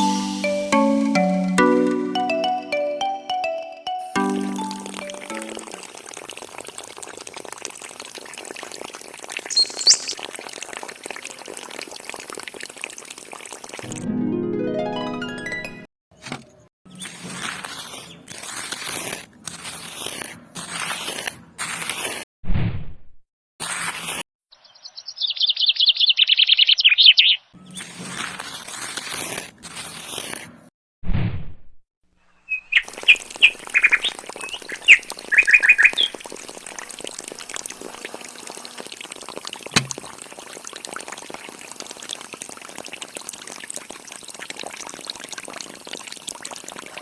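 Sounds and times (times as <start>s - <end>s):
music: 0.0s - 5.7s, 13.9s - 15.9s
water pouring and splashing: 4.2s - 14.0s, 16.9s - 22.1s, 27.7s - 30.4s, 32.8s - 47.0s
rapid trill of bird-like chirps: 9.4s - 10.2s, 24.5s - 27.5s, 32.5s - 36.2s.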